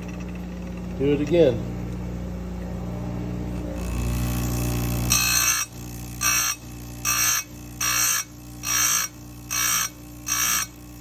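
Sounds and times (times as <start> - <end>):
grinder motor humming: 0.0 - 11.0
grinding wheel rasping on chain: 3.8 - 11.0.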